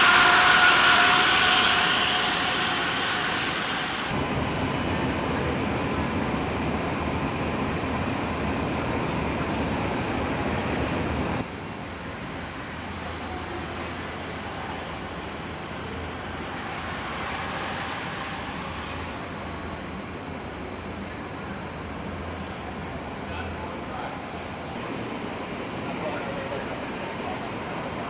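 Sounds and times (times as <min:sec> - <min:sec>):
machine whine: 0:00.0 - 0:11.4
factory machinery noise: 0:00.0 - 0:11.5, 0:24.8 - 0:28.0.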